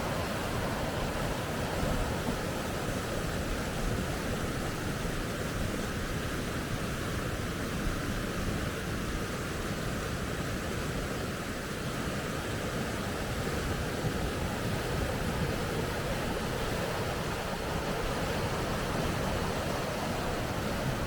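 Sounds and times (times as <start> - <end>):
river rapids roaring: 0.0 - 4.8, 12.4 - 21.0.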